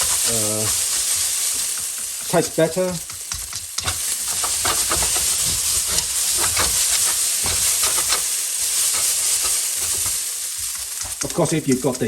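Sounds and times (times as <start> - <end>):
noodles sizzling in a wok: 0.0 - 12.0
utensil scraping and clicking: 3.0 - 12.0.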